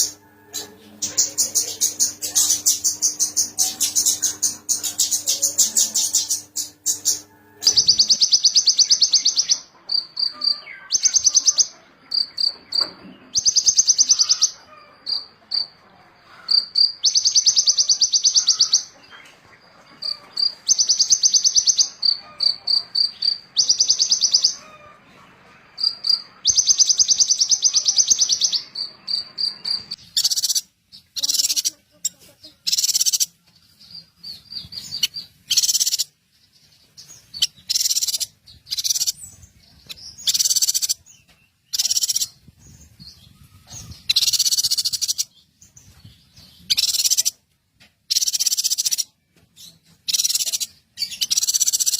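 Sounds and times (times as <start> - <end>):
songbird trilling and chipping: 1.0 - 15.7, 16.4 - 19.0, 20.0 - 24.6, 25.8 - 31.9, 32.6 - 36.1, 37.1 - 42.5, 43.8 - 47.4, 48.1 - 51.9.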